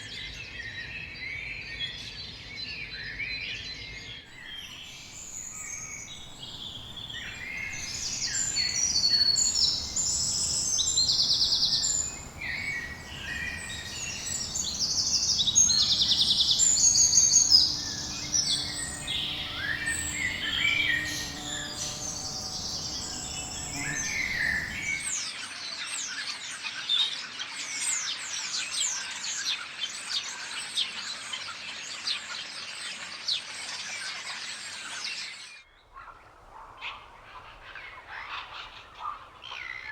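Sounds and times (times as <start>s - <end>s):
birds trilling and chattering: 4.3s - 25.5s
chorus of down-slurred chirps: 4.4s - 25.1s.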